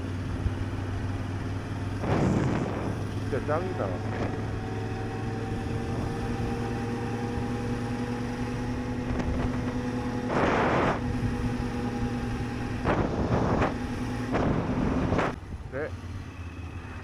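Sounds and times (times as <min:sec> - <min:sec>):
motorcycle engine cruising: 0:00.0 - 0:17.0
wind noise on microphone: 0:01.9 - 0:03.3, 0:09.0 - 0:11.6, 0:12.3 - 0:15.4.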